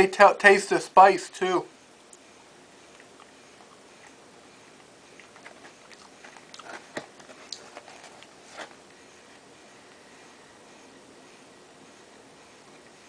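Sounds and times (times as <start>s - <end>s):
person chewing crunchy food: 2.8s - 4.2s, 4.8s - 8.8s.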